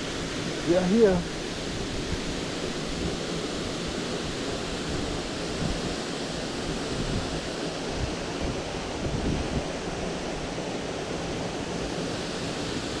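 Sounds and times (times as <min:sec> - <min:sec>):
waterfall roaring: 0:00.0 - 0:13.0
wind buffeting microphone: 0:06.7 - 0:09.9.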